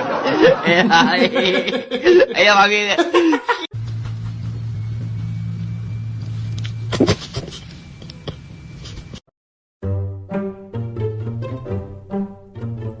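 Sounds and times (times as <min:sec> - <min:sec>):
steady low hum: 0:03.8 - 0:09.2.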